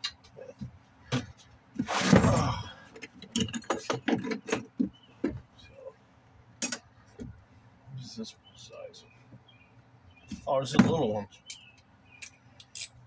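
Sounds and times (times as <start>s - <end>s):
metal sockets clinking and rattling: 11.5s - 13.0s.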